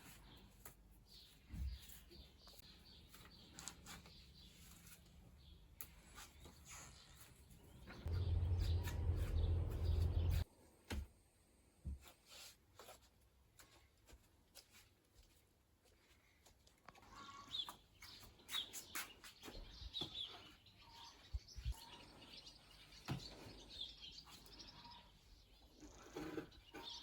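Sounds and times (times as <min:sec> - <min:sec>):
birds chirping faintly: 0:00.0 - 0:10.6, 0:15.9 - 0:27.0
loud low rumble: 0:08.1 - 0:10.4.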